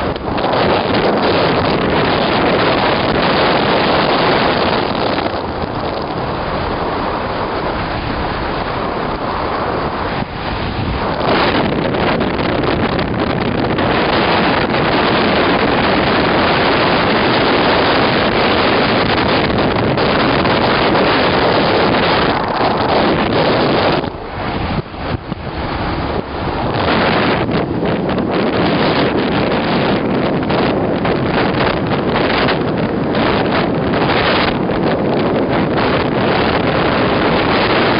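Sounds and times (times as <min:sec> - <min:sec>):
wind rushing over microphone: 0:00.0 - 0:37.9.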